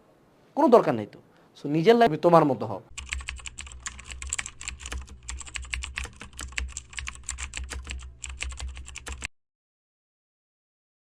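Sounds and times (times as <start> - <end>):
steady low hum: 2.8 - 9.3
fast typing on a keyboard: 2.9 - 9.3.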